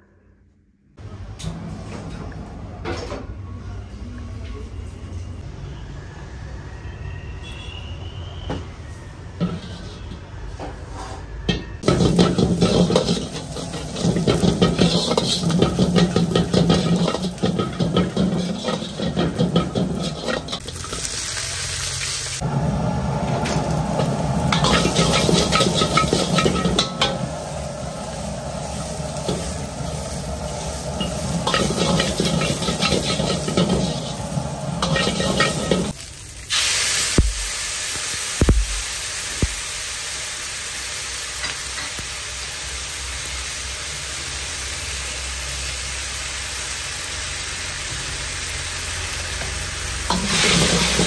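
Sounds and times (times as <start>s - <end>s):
metal ladle scraping pan: 9.3s - 21.2s, 24.0s - 36.0s, 50.1s - 51.0s
food sizzling in pan: 11.8s - 51.0s.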